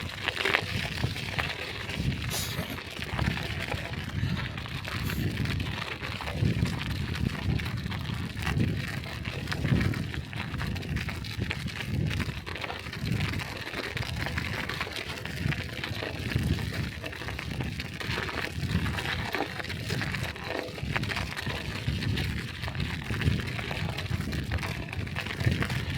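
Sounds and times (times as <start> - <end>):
bicycle tyres hissing on snow: 1.0 - 8.8.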